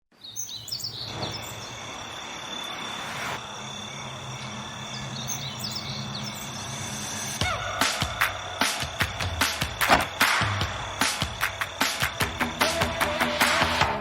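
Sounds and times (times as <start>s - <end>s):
birds chirping: 0.1s - 13.6s
high insect drone: 0.8s - 13.5s.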